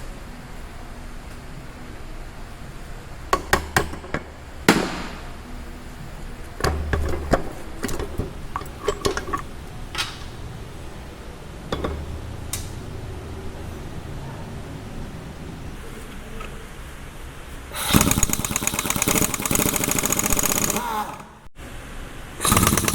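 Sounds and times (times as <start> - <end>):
metal tools clinking and knocking: 3.4 - 5.1, 6.6 - 10.4, 11.7 - 12.4
sharp clicks: 17.8 - 21.3.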